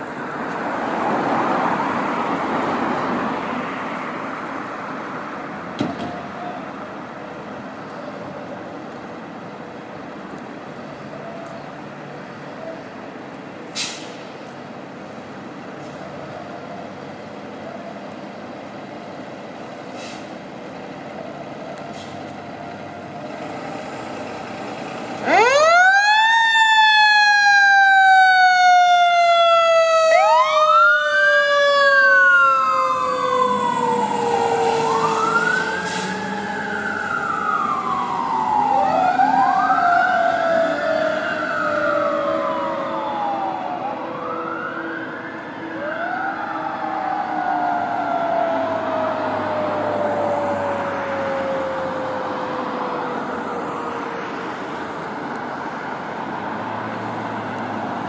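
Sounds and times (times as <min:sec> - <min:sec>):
traffic rumble: 0:00.0 - 0:58.0
truck engine rumble: 0:03.9 - 0:58.0
electronic siren sweeping: 0:25.2 - 0:54.1.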